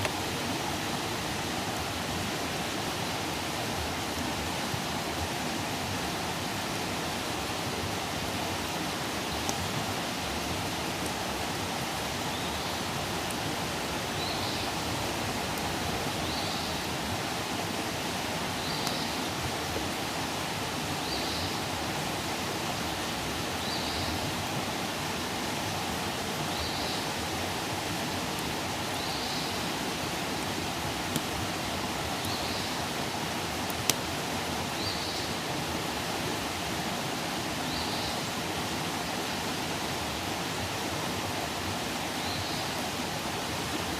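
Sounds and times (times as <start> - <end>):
campfire hissing: 0.0 - 43.9
fire crackling pops: 31.0 - 31.4, 33.6 - 34.1.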